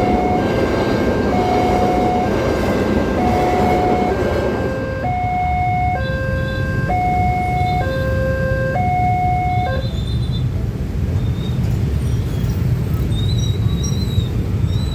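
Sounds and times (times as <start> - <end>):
steady low rumble: 0.0 - 9.8
level crossing two-tone alarm: 0.0 - 9.9.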